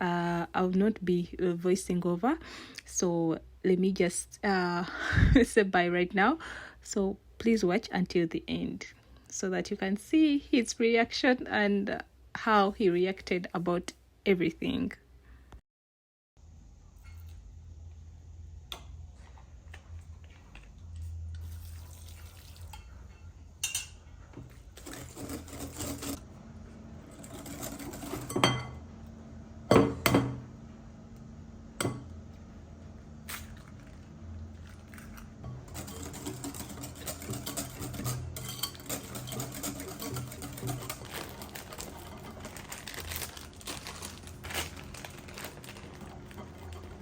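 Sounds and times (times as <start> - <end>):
dishes and utensils clinking: 22.6 - 24.0, 34.9 - 43.2, 45.4 - 47.0
steady low hum: 22.7 - 47.0
liquid handling: 40.1 - 47.0.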